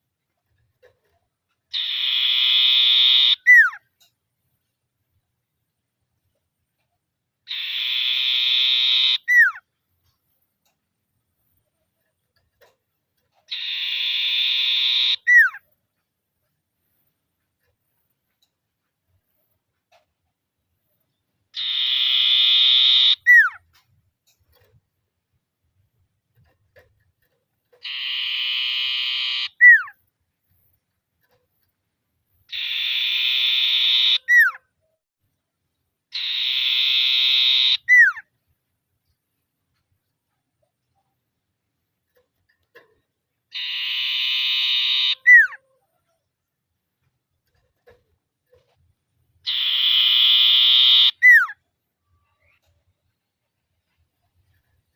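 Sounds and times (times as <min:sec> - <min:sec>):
bird buzzy trill call: 0:01.7 - 0:03.8, 0:07.5 - 0:09.6, 0:13.5 - 0:15.6, 0:21.6 - 0:23.6, 0:27.8 - 0:30.0, 0:32.5 - 0:34.6, 0:36.1 - 0:38.2, 0:43.5 - 0:45.6, 0:49.4 - 0:51.6
bird whistle sliding downward: 0:49.5 - 0:51.6.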